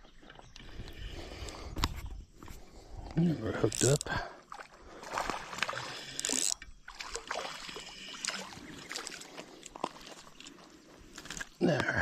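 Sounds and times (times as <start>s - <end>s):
water splashing: 3.6s - 11.8s.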